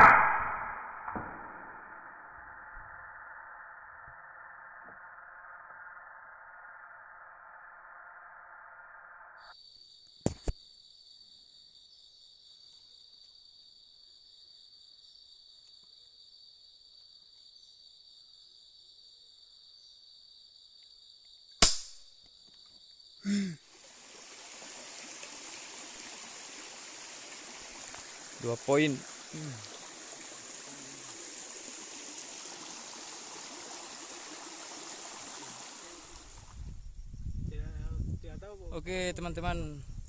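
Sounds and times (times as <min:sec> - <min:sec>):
air rifle shot: 0:00.0 - 0:02.0, 0:21.6 - 0:22.0
high insect drone: 0:22.2 - 0:40.0
rushing water-like noise: 0:23.6 - 0:36.6.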